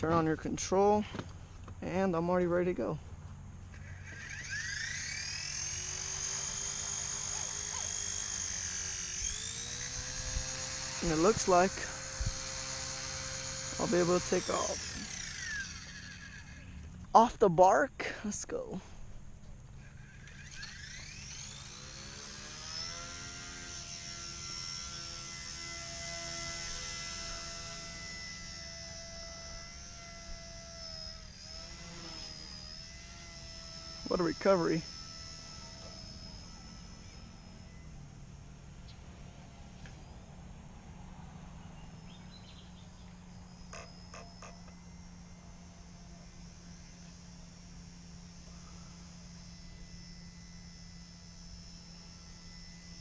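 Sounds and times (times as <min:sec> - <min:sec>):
rc helicopter motor whine: 0:00.0 - 0:53.0.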